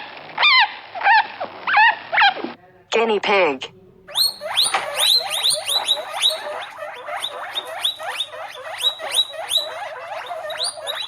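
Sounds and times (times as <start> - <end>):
guinea pig squealing: 4.1 - 11.0.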